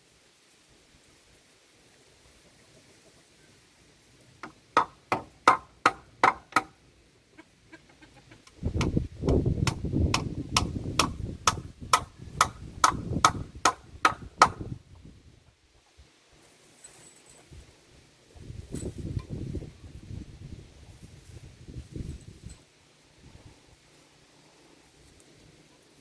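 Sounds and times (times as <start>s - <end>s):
rapid strikes on wood: 4.4s - 6.8s, 8.8s - 14.8s.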